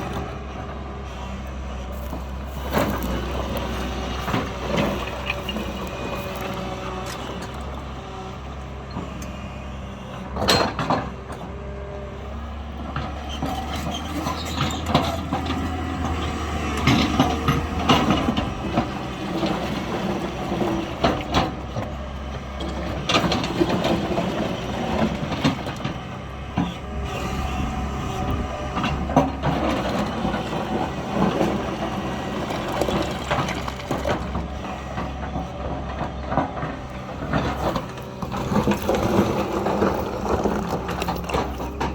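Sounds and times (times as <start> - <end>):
diesel engine running under load: 0.0 - 41.9.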